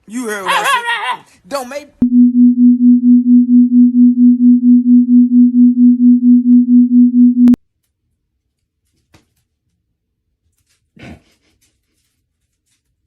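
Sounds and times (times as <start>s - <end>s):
pulsing low electronic tone: 2.0s - 7.6s.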